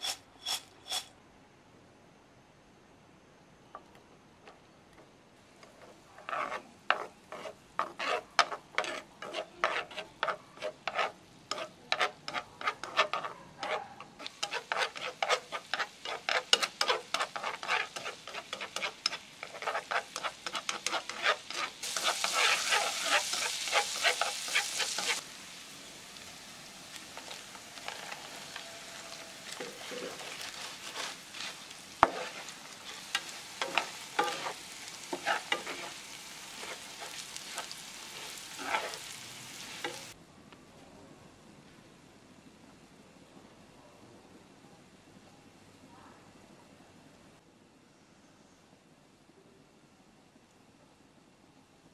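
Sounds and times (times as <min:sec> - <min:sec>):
loud hissing sizzle: 0:00.0 - 0:01.1, 0:14.2 - 0:40.2
garlic frying in butter: 0:05.7 - 0:40.2.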